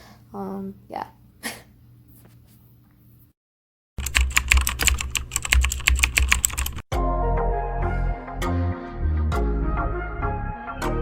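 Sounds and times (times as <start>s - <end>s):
rapid sharp clicks: 4.0s - 6.8s.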